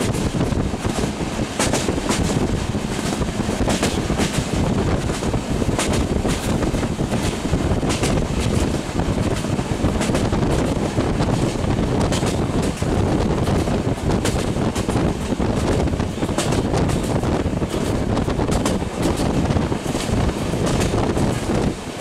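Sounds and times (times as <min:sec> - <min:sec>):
train wheels rumbling on rail: 0:00.0 - 0:22.0
wind buffeting microphone: 0:00.0 - 0:22.0.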